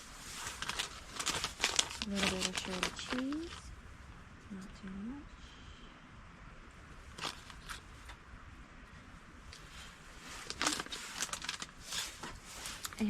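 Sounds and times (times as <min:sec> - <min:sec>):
food packaging rustling and clicking: 0:00.3 - 0:03.6, 0:07.1 - 0:08.2, 0:10.3 - 0:13.0.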